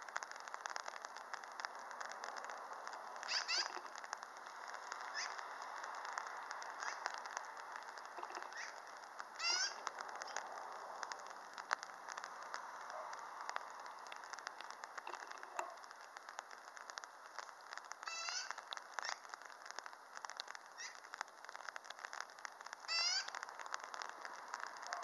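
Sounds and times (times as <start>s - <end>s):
steady hiss: 0.0s - 25.0s
birds calling among trees: 3.2s - 4.2s, 5.0s - 5.6s, 6.8s - 10.5s, 13.8s - 16.0s, 17.4s - 19.5s, 20.7s - 21.1s, 22.9s - 23.4s.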